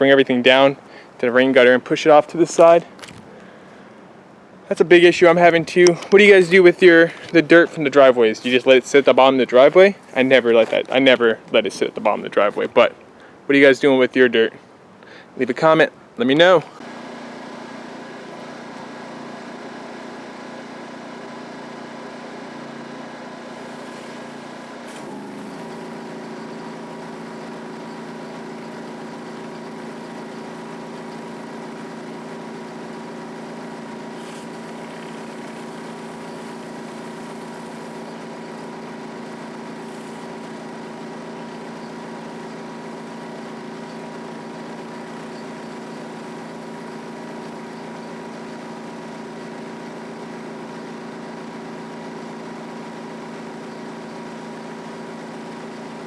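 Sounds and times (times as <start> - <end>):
pressure washer engine running: 4.6 - 10.8, 16.8 - 56.0.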